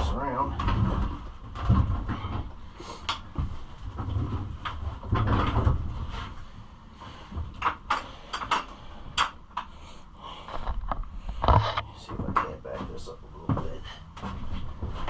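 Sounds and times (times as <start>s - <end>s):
sharp clicks and knocks: 7.4s - 9.8s.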